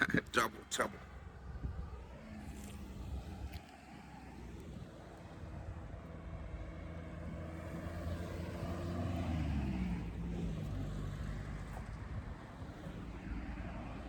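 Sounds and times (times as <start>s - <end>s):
vehicle driving past: 5.6s - 12.1s.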